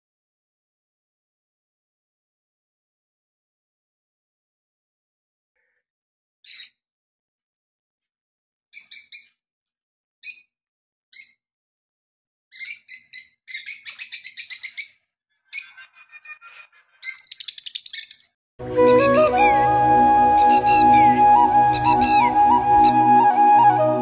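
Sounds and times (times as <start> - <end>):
small songbirds chirping: 12.5 - 15.0.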